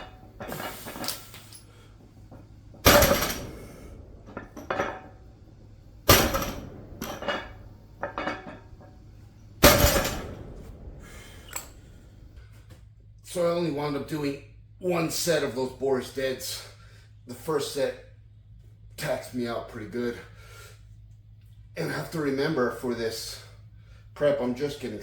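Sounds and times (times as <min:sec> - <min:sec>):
weight plates clanking on floor: 0:06.1 - 0:08.9.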